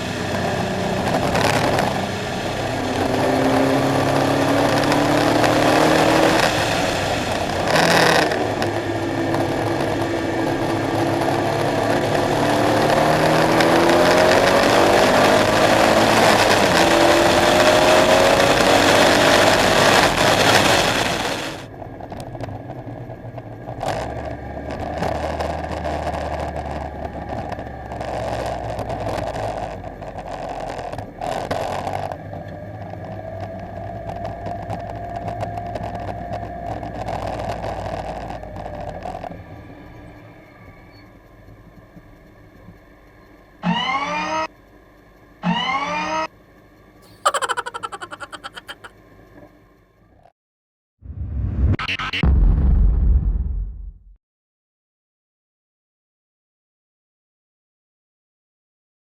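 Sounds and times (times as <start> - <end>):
car engine revving through gears: 0.0 - 21.7.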